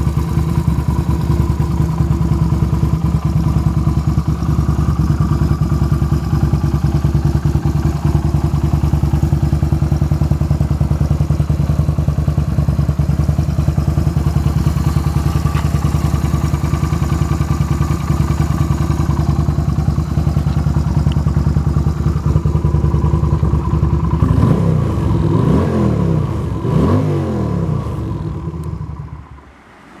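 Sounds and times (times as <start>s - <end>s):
engine idling: 0.0s - 30.0s
engine revving: 22.3s - 30.0s.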